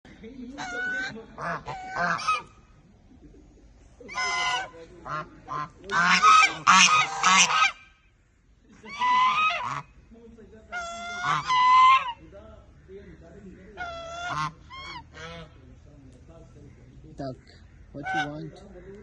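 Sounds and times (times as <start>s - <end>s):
goose honking: 0.6s - 2.7s, 4.0s - 8.0s, 8.8s - 10.0s, 10.7s - 12.3s, 13.6s - 15.6s, 18.0s - 19.0s.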